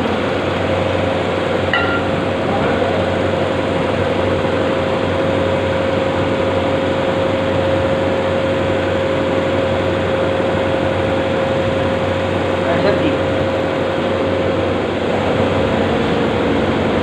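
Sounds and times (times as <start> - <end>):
low hum: 0.0 - 12.6
machine whine and mechanical rush: 0.0 - 17.0.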